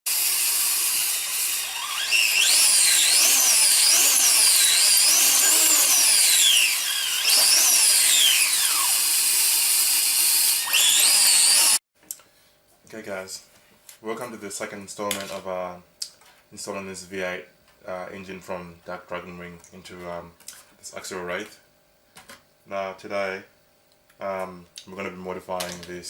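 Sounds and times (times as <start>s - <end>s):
harsh drill-like synth whine: 0.1s - 11.8s.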